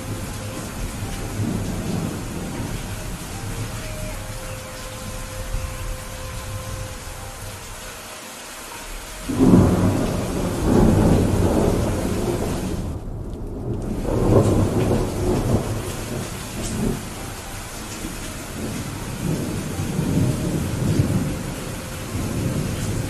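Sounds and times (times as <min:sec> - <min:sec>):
steady rain: 0:00.0 - 0:23.0
thunder clap rolling: 0:09.3 - 0:17.2.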